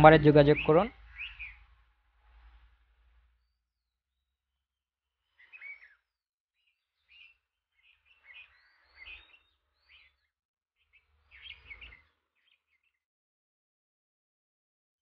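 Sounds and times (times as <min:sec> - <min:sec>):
faint bird chirping: 0:00.0 - 0:02.0, 0:05.2 - 0:13.0.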